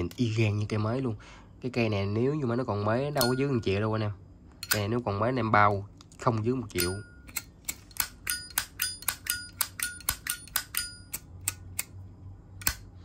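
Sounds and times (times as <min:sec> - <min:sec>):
lighter metallic clicks: 0:12.6 - 0:13.0.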